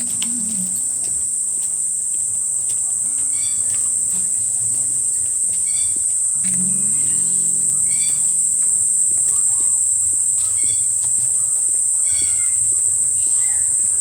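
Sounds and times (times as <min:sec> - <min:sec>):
bird calling: 0:00.0 - 0:01.0
insects droning: 0:00.0 - 0:14.0.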